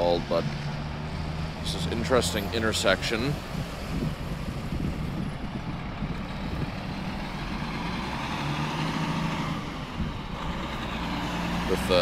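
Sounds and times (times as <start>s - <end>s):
motor vehicles passing: 0.0s - 12.0s
steady engine hum: 0.0s - 12.0s.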